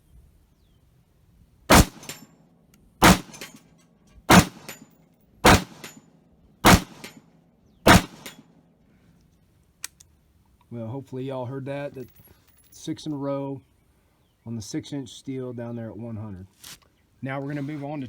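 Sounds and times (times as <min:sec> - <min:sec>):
rifle shots: 0:01.7 - 0:02.2, 0:03.0 - 0:03.6, 0:04.3 - 0:06.0, 0:06.6 - 0:07.2, 0:07.9 - 0:08.4
bullet hitting steel plate: 0:01.7 - 0:02.3, 0:03.0 - 0:06.0, 0:06.6 - 0:07.3, 0:07.9 - 0:08.5.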